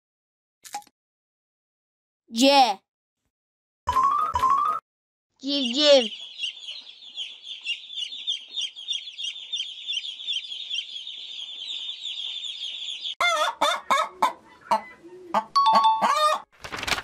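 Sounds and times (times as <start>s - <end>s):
baby chick peeping: 5.4s - 16.4s
hens clucking: 5.7s - 16.4s.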